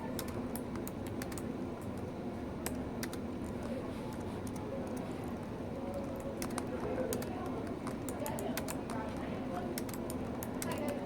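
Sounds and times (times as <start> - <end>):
low background hum: 0.0 - 11.0
laptop keyboard typing: 0.1 - 2.0, 2.6 - 9.1, 9.7 - 11.0.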